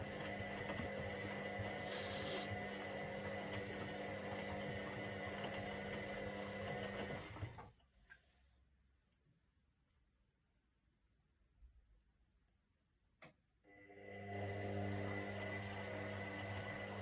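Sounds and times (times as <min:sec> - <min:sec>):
washing machine motor hum: 0:00.0 - 0:07.8, 0:13.7 - 0:17.0.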